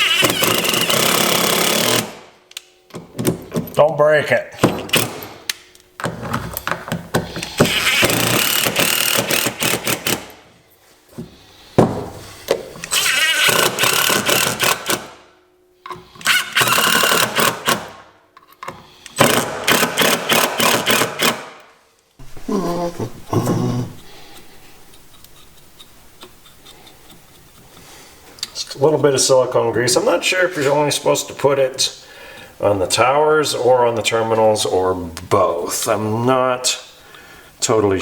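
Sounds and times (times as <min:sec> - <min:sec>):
power tool rattling buzz: 0:00.0 - 0:02.2, 0:07.7 - 0:10.3, 0:12.9 - 0:15.1, 0:16.2 - 0:17.9, 0:19.2 - 0:21.5.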